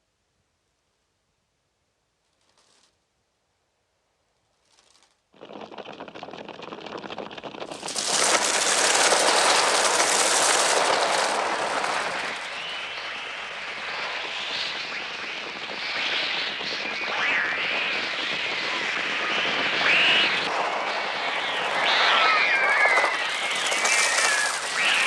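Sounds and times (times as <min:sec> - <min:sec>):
crow wingbeats: 0:19.3 - 0:25.0
shrill wavering bird cries: 0:21.8 - 0:25.0.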